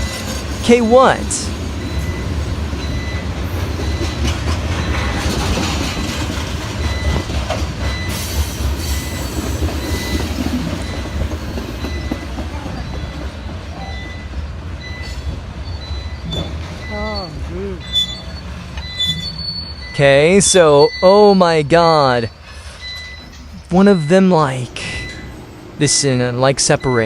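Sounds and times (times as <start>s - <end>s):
train rumbling on track: 0.0s - 27.0s.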